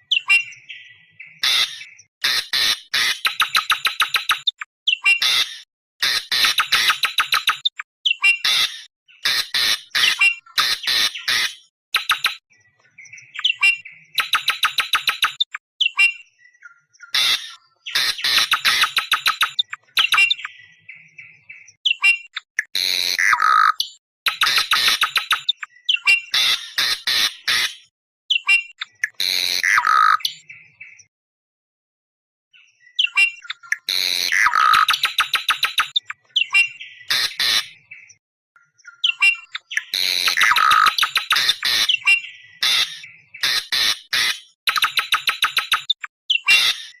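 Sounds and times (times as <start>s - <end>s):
harsh screeching bird squawks: 1.4s - 12.3s, 17.1s - 20.5s, 21.9s - 30.4s, 33.0s - 37.8s, 39.0s - 47.0s.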